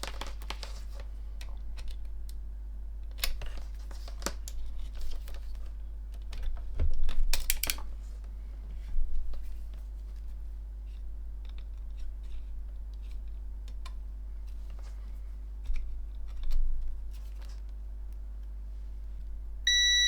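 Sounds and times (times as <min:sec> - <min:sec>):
steady low hum: 0:12.4 - 0:20.0.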